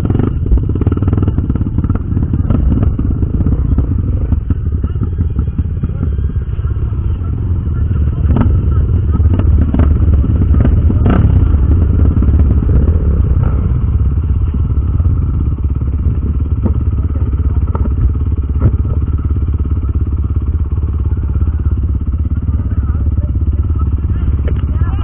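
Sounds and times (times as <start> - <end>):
motorcycle engine running: 0.0 - 25.0
knocks and clatter over rough ground: 8.3 - 20.4.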